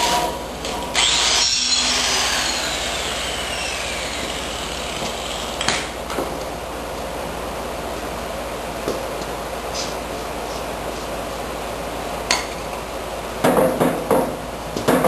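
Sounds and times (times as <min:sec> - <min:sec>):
power tool whirring: 0:00.7 - 0:05.9.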